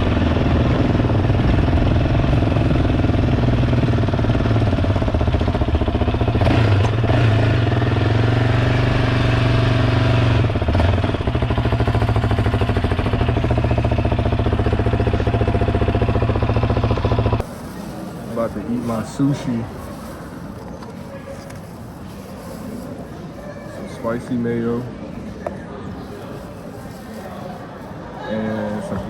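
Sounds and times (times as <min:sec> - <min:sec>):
vehicle engine running: 0:00.0 - 0:17.8.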